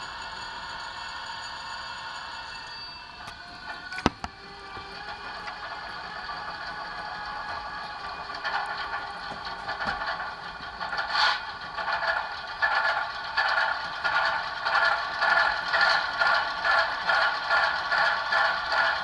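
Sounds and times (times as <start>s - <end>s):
rattle: 3.0s - 15.0s.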